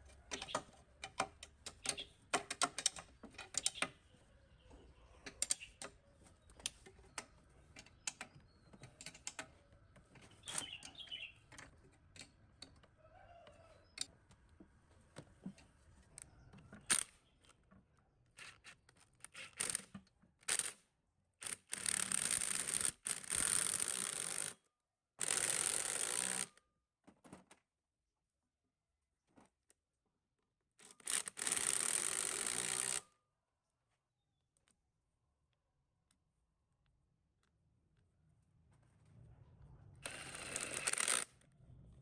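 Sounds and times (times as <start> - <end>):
clicks and taps on metal parts: 0.3 - 4.0.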